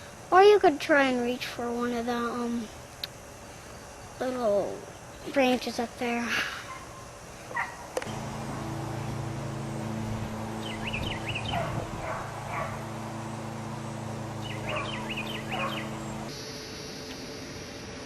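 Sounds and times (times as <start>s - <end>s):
low motor hum: 8.0s - 16.5s
bird chirping: 8.0s - 17.3s.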